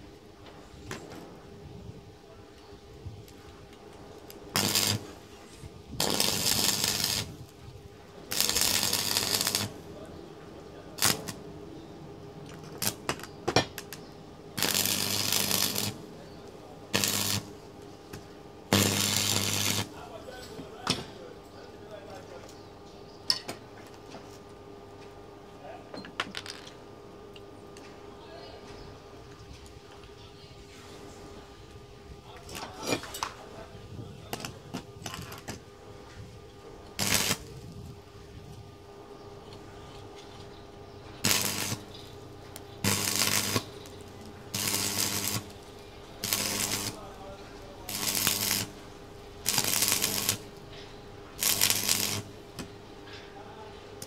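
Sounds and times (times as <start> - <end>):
steady electrical hum: 0.0 - 54.0
arc welding crackle: 3.0 - 11.5, 12.4 - 20.9, 33.9 - 54.0
loud burst of hissing: 6.0 - 7.3, 8.3 - 9.8, 14.6 - 16.0, 18.7 - 20.0, 37.0 - 37.6, 41.2 - 41.9, 42.8 - 45.6, 46.2 - 47.1, 47.9 - 48.8, 49.4 - 50.5.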